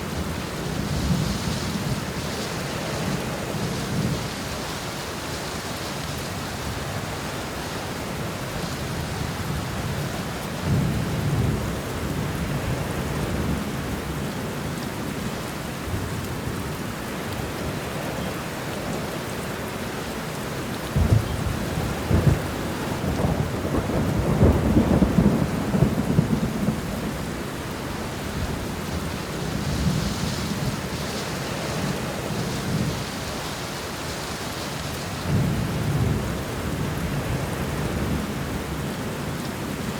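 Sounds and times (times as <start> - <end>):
heavy rain: 0.0 - 39.9
rolling thunder: 20.9 - 31.1.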